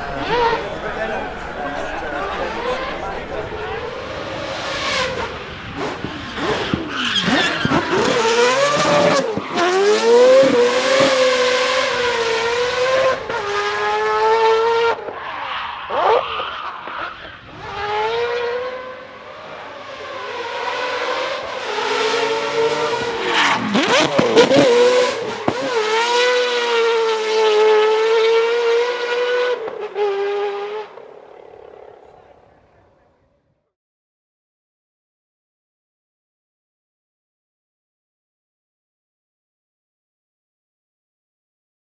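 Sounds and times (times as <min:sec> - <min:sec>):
car engine revving hard: 0:00.0 - 0:15.1, 0:15.9 - 0:31.0.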